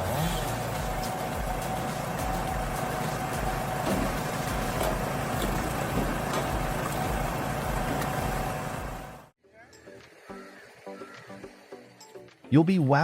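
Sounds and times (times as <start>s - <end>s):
firewood processor running: 0.0s - 9.3s
wood knocks: 3.8s - 7.1s.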